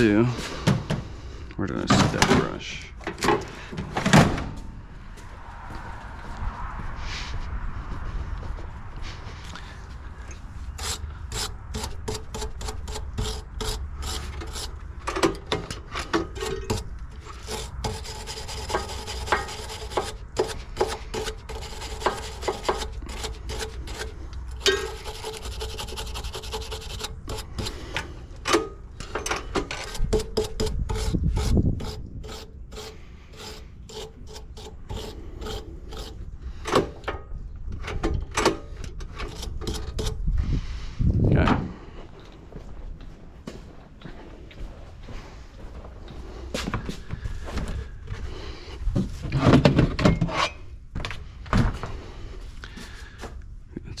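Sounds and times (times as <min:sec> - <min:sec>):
brush scrubbing metal parts: 0:10.7 - 0:28.0, 0:29.5 - 0:36.3.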